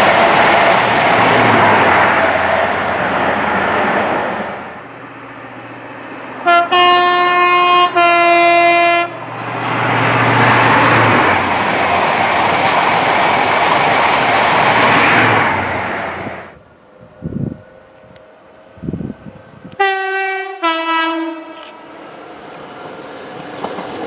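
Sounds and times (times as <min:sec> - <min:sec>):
train passing at speed: 0:00.0 - 0:24.0
train horn blasts: 0:06.4 - 0:09.2, 0:19.7 - 0:21.9.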